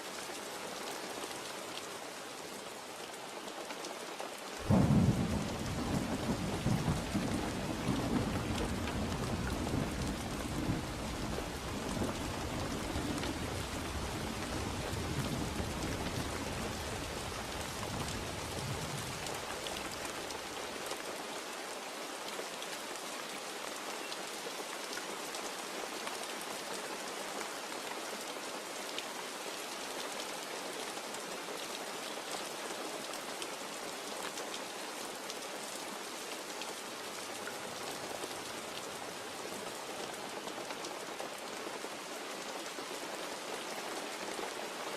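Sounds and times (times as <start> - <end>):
steady rain falling: 0.0 - 44.9
low rumble of thunder: 4.6 - 20.0.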